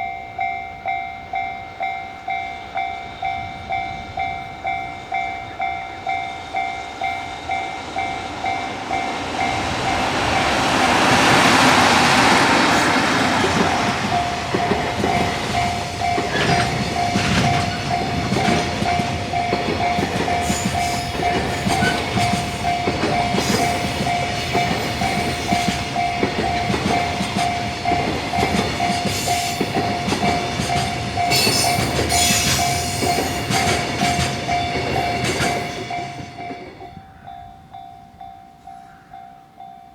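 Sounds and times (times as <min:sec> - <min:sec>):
freight train passing: 0:00.0 - 0:39.9
level-crossing warning bell: 0:00.0 - 0:39.9
wagons clacking over rail joints: 0:08.4 - 0:37.0.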